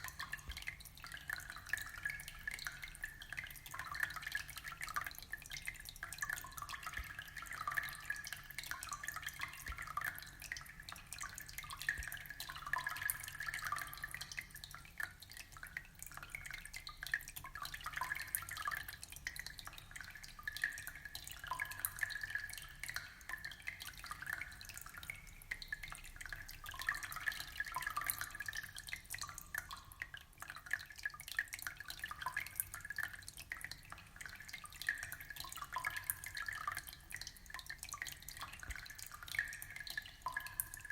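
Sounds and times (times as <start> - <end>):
aquarium water trickling: 0.0 - 40.9.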